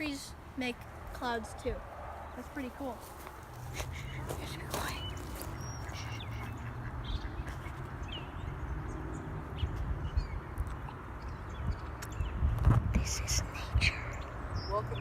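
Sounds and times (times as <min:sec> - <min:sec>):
wind rumbling on microphone: 0:00.9 - 0:15.0
faint bird calls: 0:03.7 - 0:07.8.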